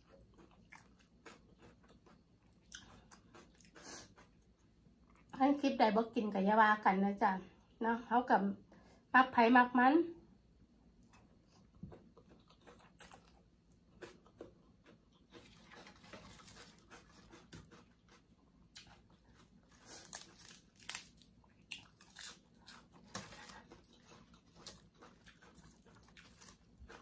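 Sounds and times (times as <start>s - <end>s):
chewing with crunches and wet smacks: 0.0s - 5.4s, 11.0s - 27.0s.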